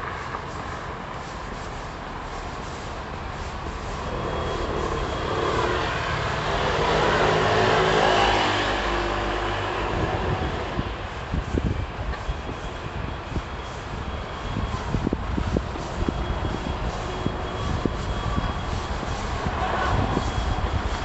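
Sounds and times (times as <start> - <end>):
vehicle passing by: 3.8 - 11.7.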